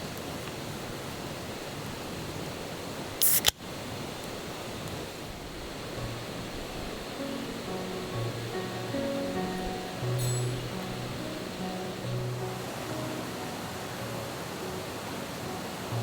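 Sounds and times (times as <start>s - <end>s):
background hiss: 0.0s - 16.0s
sharp snap: 3.2s - 3.6s.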